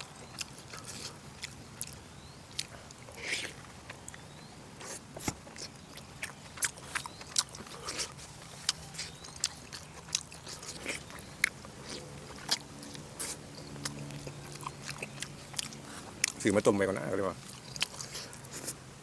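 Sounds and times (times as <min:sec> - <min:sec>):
person chewing: 0:00.0 - 0:16.4, 0:17.4 - 0:18.8.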